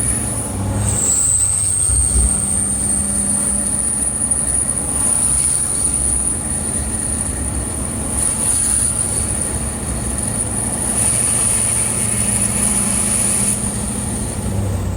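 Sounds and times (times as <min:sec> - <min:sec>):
high-pitched turbo whistle: 0:00.0 - 0:07.7
diesel engine low rumble: 0:00.0 - 0:14.9.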